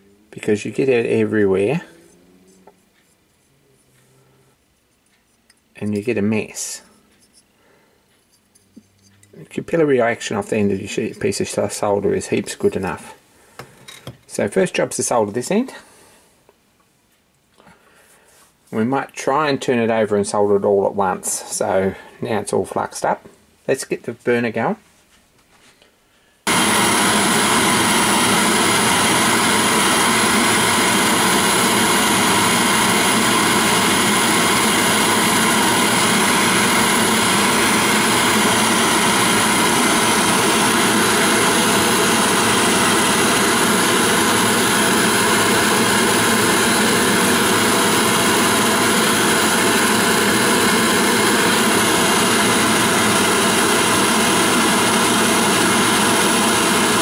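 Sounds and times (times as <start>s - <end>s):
gas burner roaring: 26.5s - 57.0s.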